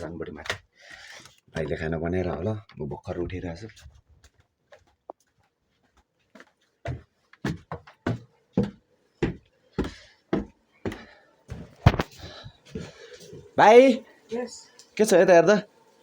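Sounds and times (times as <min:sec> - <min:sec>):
footsteps going up stairs: 0:03.8 - 0:13.0.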